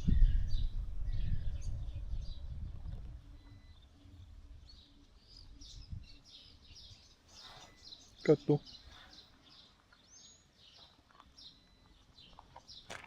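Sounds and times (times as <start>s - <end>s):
low rumble: 0.0s - 4.8s
small birds chirping: 0.0s - 13.0s.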